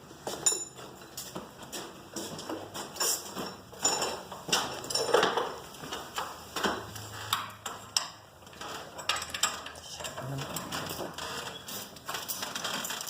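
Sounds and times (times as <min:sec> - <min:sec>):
metal tools clinking: 0:00.3 - 0:01.2, 0:02.9 - 0:05.6.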